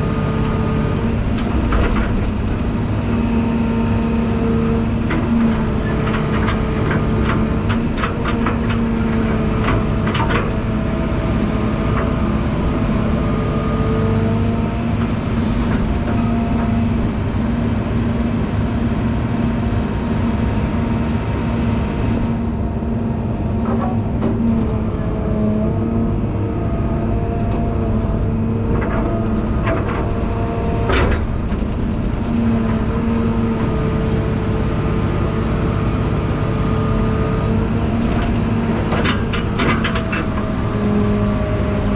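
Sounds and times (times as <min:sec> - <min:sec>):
heavy equipment engine running: 0:00.0 - 0:41.9
metal clanks and knocks: 0:23.6 - 0:24.6.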